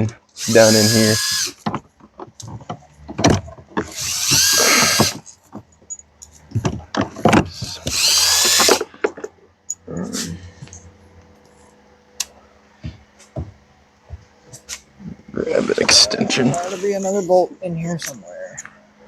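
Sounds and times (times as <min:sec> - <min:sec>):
power drill whirring: 0:00.4 - 0:01.6, 0:03.9 - 0:05.2, 0:07.5 - 0:08.8.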